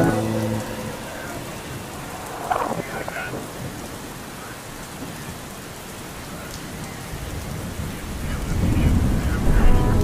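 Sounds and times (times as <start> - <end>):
rain falling: 0.0 - 10.0
thunder rumbling: 7.3 - 10.0.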